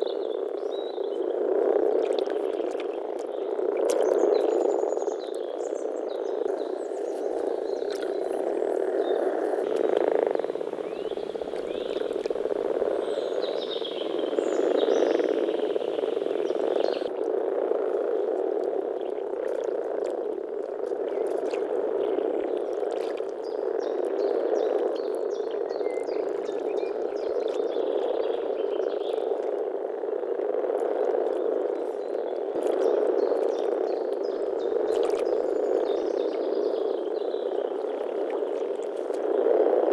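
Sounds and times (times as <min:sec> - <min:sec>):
frogs chorus purring: 0:00.0 - 0:39.9.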